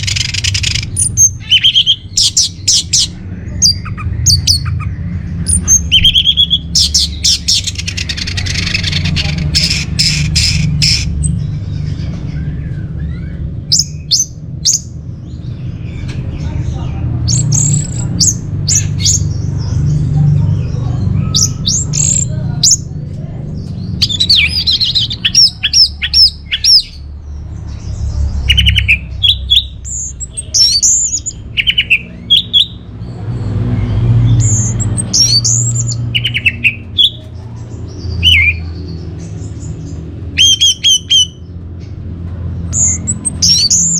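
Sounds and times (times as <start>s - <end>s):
thrush singing whistles: 0.0s - 4.8s, 5.4s - 11.1s, 28.5s - 32.8s, 33.9s - 37.2s, 40.4s - 41.4s.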